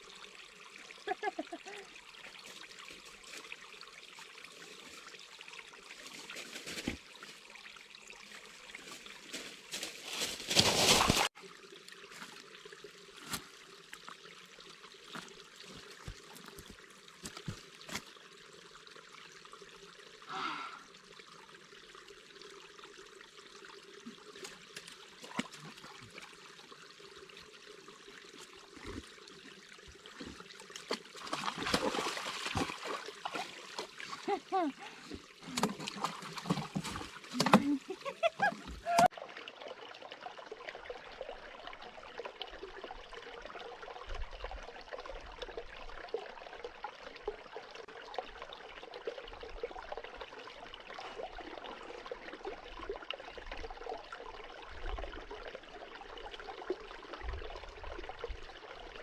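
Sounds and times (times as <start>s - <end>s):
water trickling: 0.0s - 59.0s
water rushing: 28.2s - 40.1s.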